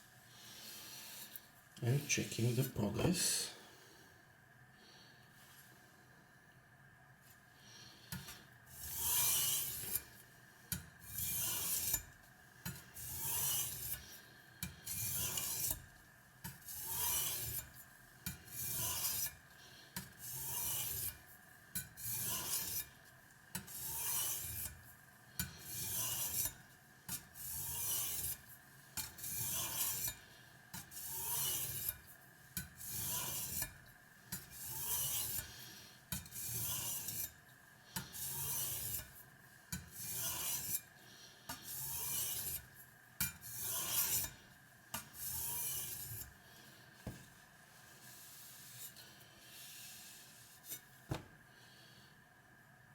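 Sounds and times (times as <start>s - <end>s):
blade scraping on whetstone: 8.7s - 15.9s, 16.5s - 19.4s, 20.0s - 23.0s, 23.6s - 37.4s, 38.0s - 40.9s, 41.5s - 46.4s, 48.0s - 50.9s.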